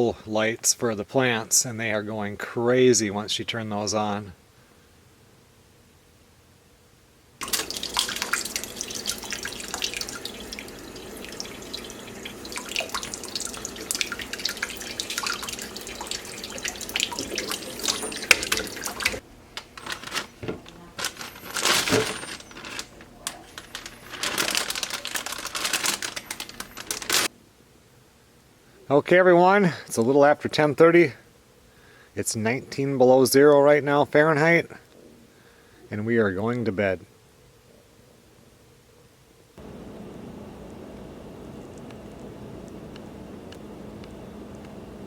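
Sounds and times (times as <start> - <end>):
tap water splashing into sink: 7.4 - 19.2.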